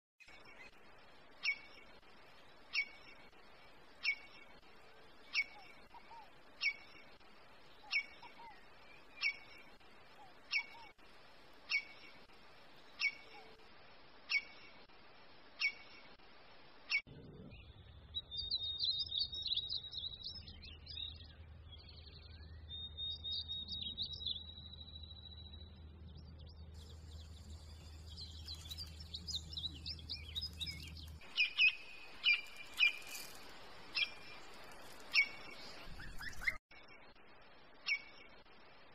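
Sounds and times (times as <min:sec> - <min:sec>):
low steady hum: 0:19.8 - 0:36.0
sharp bird chirps: 0:26.4 - 0:36.9.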